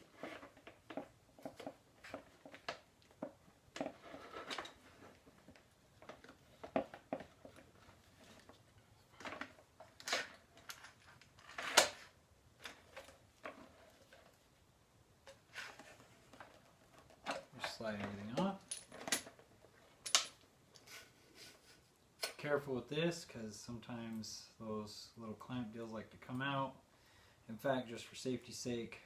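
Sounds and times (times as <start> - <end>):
clicks and taps of metal tools: 20.0 - 20.4.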